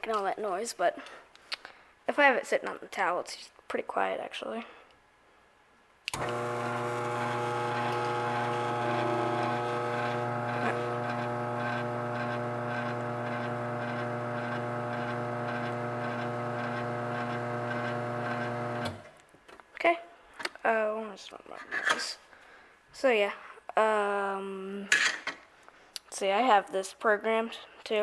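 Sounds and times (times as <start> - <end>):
garage door opener motor humming: 6.1 - 19.1.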